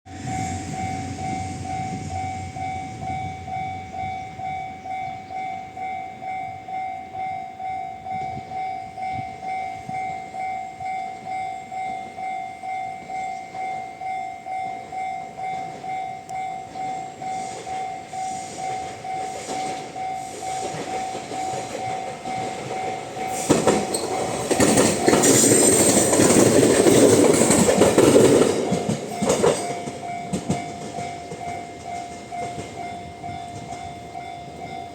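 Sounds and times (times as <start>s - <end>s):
train wheels clacking: 15.6s - 34.9s.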